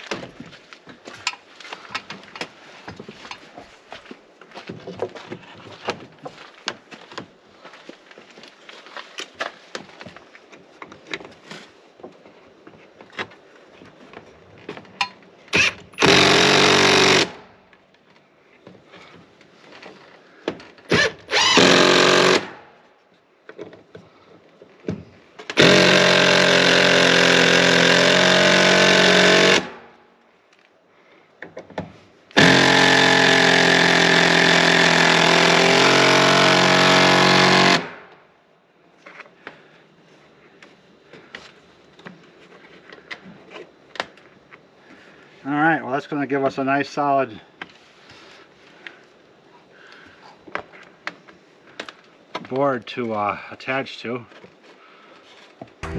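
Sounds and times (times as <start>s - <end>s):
handheld power tool running: 15.6s - 17.4s, 20.9s - 22.5s, 25.6s - 29.7s, 32.4s - 37.9s.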